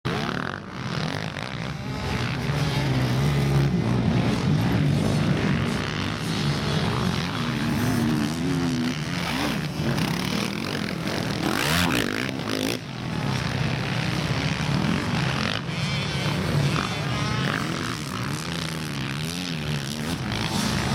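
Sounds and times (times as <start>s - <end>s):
quad bike engines revving: 0.1s - 20.9s.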